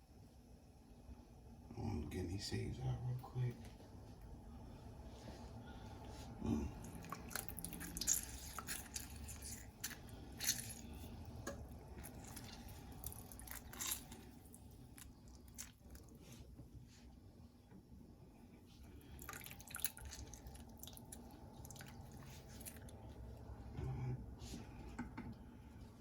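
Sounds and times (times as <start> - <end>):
wet squishing of lemon: 6.0 - 17.1, 18.7 - 23.7.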